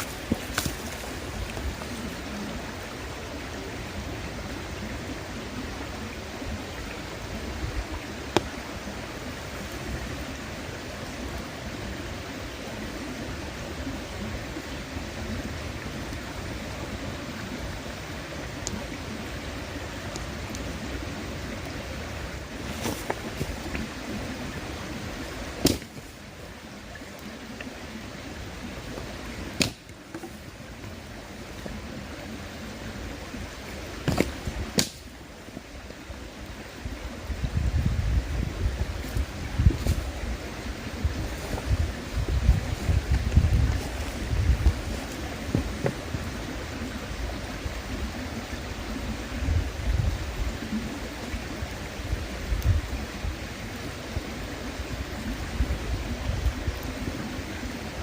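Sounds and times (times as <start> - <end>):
campfire wood popping: 0.0 - 2.1, 8.3 - 8.9, 22.5 - 26.2, 28.8 - 31.8, 34.0 - 35.2
campfire crackling: 0.0 - 49.4, 50.1 - 58.0
river rushing: 0.0 - 58.0
sharp fire pop: 25.6 - 26.0, 29.6 - 29.9, 34.1 - 35.0.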